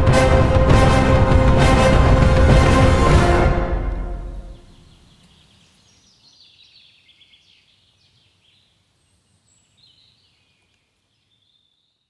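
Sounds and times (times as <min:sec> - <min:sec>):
songbirds chirping and trilling: 0:04.3 - 0:12.0.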